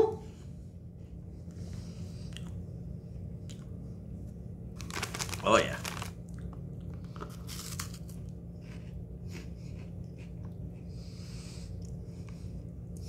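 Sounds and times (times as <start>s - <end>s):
snack bag rustling: 4.8s - 6.2s, 6.9s - 8.9s
chewing crunchy snack: 4.8s - 10.8s.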